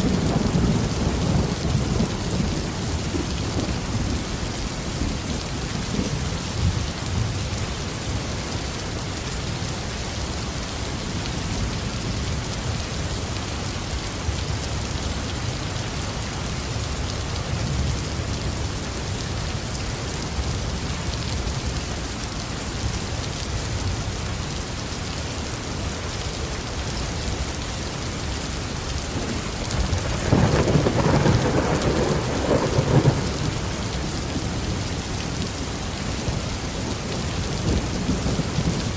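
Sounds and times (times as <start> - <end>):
low rolling thunder: 0.0 - 7.4, 29.0 - 38.9
heavy rain on a roof: 0.0 - 38.9
loud thunderclap: 29.2 - 33.8.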